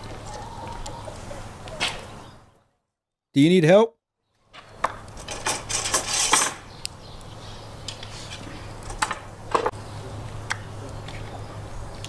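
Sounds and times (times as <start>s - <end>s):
cooking gear clattering: 5.1s - 6.7s.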